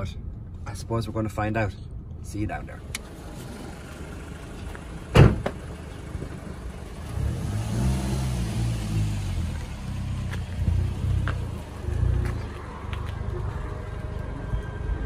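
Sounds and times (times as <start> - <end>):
car engine idling: 2.7 - 7.6
sharp thump: 5.1 - 5.6.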